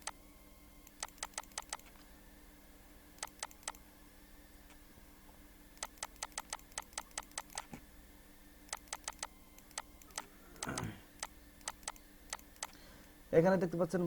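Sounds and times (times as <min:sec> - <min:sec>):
computer mouse clicks: 0:00.8 - 0:02.0, 0:03.2 - 0:03.8, 0:05.8 - 0:07.8, 0:08.7 - 0:12.8.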